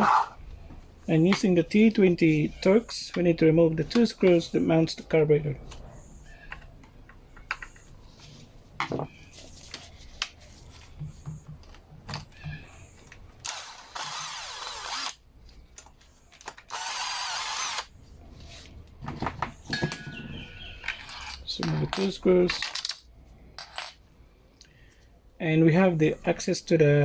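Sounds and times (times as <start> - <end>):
power screwdriver running: 13.5 - 15.2, 16.7 - 17.9.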